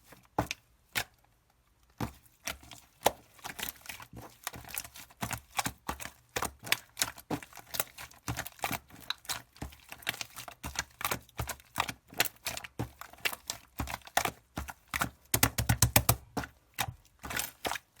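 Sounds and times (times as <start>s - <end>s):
slime clicking and popping: 15.3s - 16.3s.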